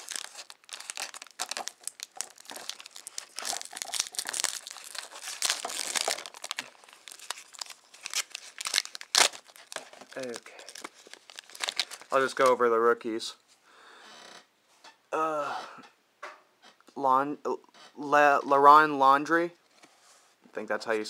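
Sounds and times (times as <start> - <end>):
wrapper crinkling and tearing: 0.0 - 12.6.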